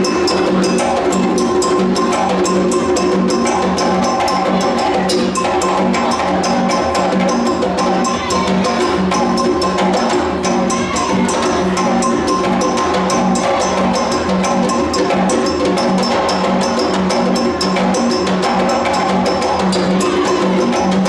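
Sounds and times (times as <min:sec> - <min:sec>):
fast sharp percussion clicks: 0:00.0 - 0:21.0.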